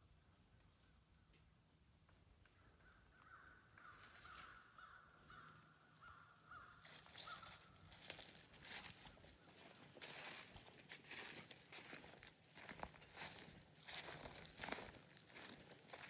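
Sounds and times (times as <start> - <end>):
bird harsh calls: 2.6 - 7.8
crunching and rustling: 6.8 - 16.0.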